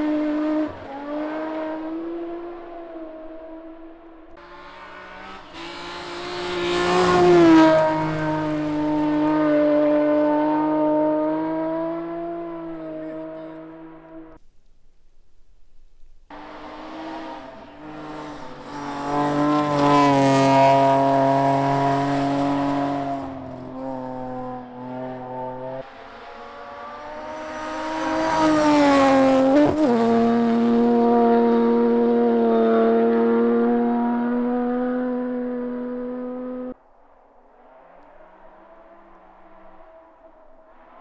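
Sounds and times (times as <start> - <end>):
rally car engine revving: 0.0 - 14.4, 16.3 - 36.8.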